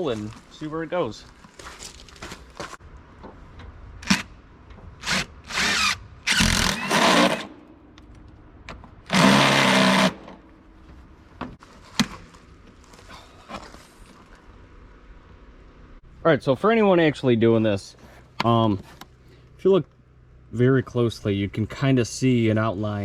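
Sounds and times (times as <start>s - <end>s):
power drill boring through metal: 5.0s - 7.5s, 9.1s - 10.3s.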